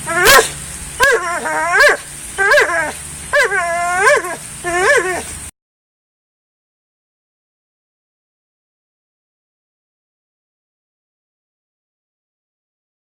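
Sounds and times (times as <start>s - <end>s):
dog whining: 0.0s - 5.4s.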